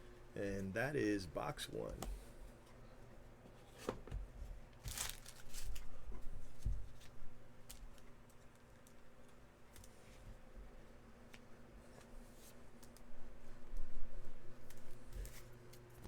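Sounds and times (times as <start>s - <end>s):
card packaging tearing and crinkling: 4.8s - 5.9s.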